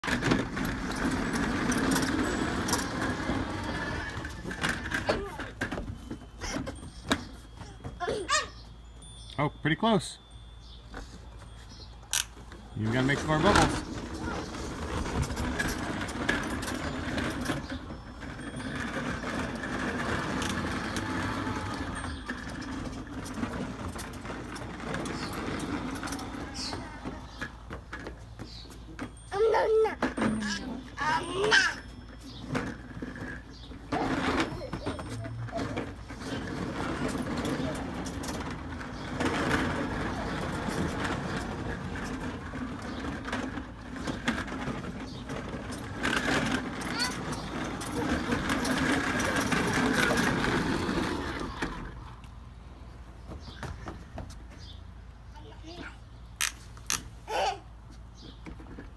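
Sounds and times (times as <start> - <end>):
small children babbling: 7.6 - 8.6, 29.3 - 32.0, 34.0 - 35.9, 57.2 - 57.8.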